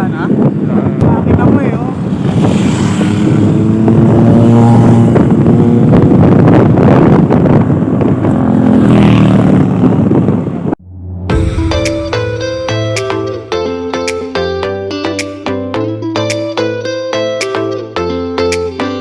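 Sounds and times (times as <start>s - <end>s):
motorcycle engines revving: 0.0s - 10.8s
wind buffeting microphone: 0.0s - 14.1s
music: 11.3s - 19.0s.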